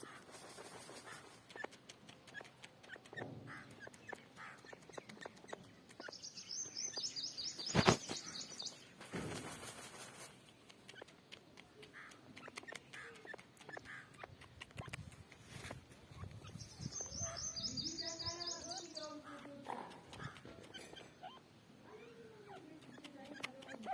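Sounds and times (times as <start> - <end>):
birds chirping: 0.0 - 23.9
light clicks: 10.4 - 15.8, 22.5 - 23.9.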